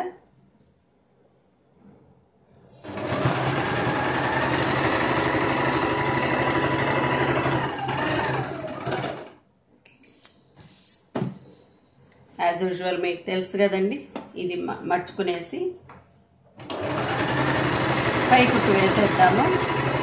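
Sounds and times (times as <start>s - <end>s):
sewing machine running: 2.8s - 9.4s, 16.6s - 20.0s.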